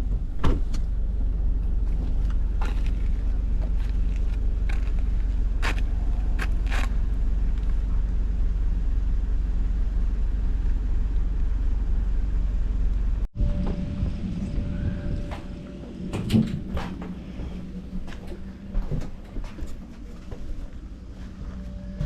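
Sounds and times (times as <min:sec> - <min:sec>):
van engine idling: 0:00.0 - 0:13.3.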